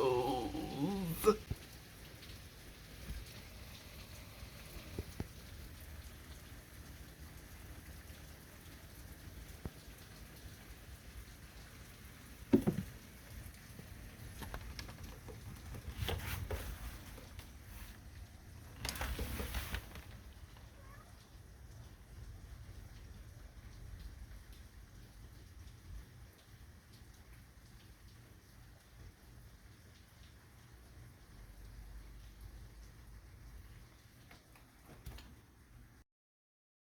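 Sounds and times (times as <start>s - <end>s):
light rain patter: 0.0s - 36.0s
rustle: 18.8s - 21.4s.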